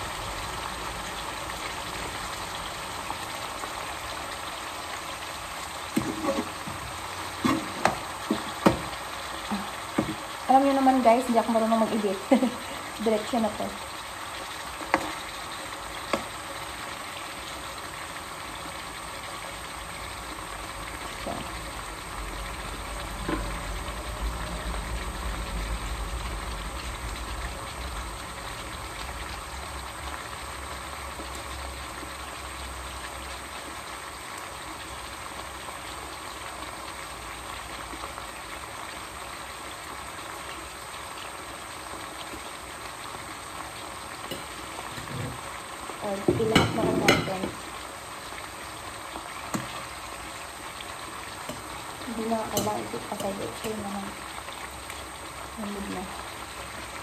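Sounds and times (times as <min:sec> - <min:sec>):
chicken sizzling in a pan: 0:00.0 - 0:57.0
low rumble: 0:23.0 - 0:28.6.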